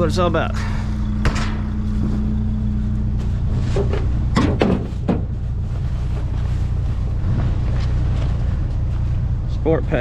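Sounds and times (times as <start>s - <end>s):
truck engine idling: 0.0s - 10.0s
rustles and knocks: 3.1s - 9.2s.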